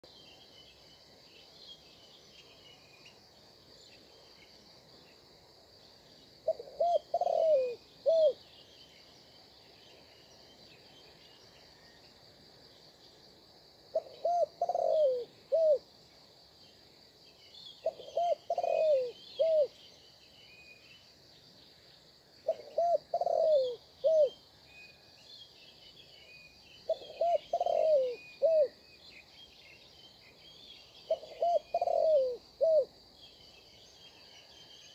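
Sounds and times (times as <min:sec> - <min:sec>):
small birds chirping: 0:00.0 - 0:13.2, 0:13.9 - 0:34.9
dove cooing: 0:06.4 - 0:08.4, 0:13.9 - 0:15.8, 0:17.8 - 0:19.8, 0:22.4 - 0:24.4, 0:26.9 - 0:28.8, 0:31.1 - 0:32.9.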